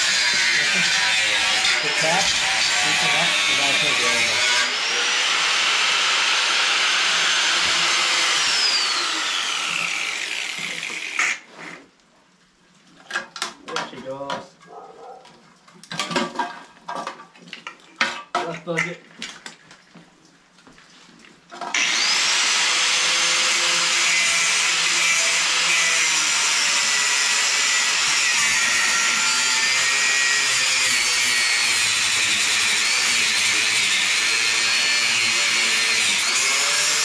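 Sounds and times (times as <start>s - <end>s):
angle grinder cutting steel: 0.0s - 11.5s, 21.7s - 37.0s.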